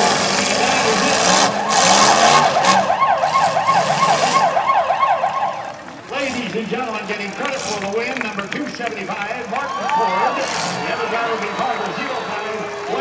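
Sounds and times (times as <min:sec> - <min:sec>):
car engines running: 0:00.0 - 0:13.0
electronic siren yelping: 0:01.4 - 0:05.9.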